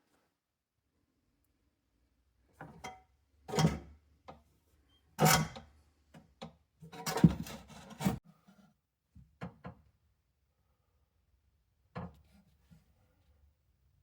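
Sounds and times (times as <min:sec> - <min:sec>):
objects knocking and scraping: 0:07.0 - 0:08.2.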